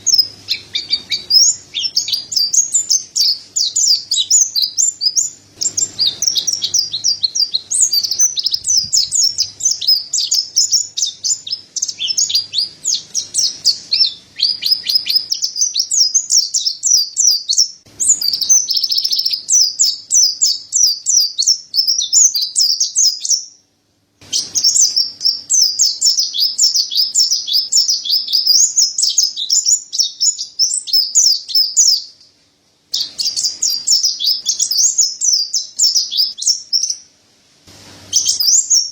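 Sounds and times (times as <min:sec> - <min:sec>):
bird twittering song: 0:00.0 - 0:23.6, 0:24.2 - 0:32.3, 0:32.9 - 0:37.1, 0:38.1 - 0:38.9.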